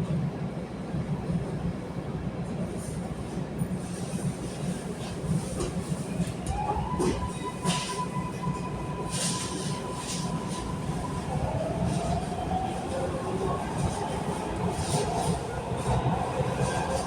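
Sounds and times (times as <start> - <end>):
subway car rumbling on rails: 0.0 - 17.0.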